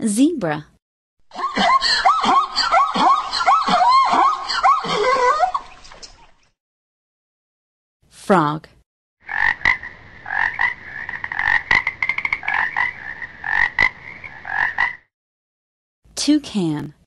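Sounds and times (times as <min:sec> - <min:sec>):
frog croaking: 0:09.2 - 0:15.1.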